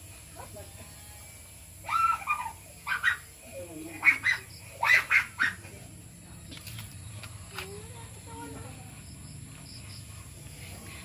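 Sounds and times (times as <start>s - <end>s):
birds making harsh calls: 1.8s - 5.7s.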